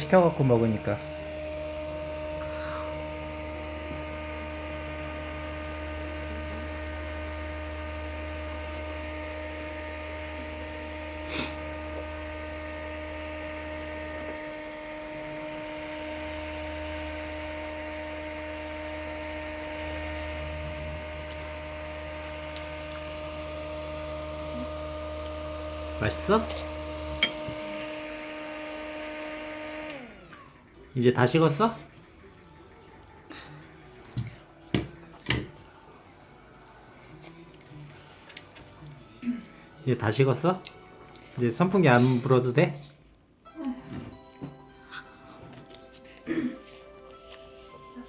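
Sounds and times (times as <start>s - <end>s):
electric fan motor hum: 0.0s - 31.8s.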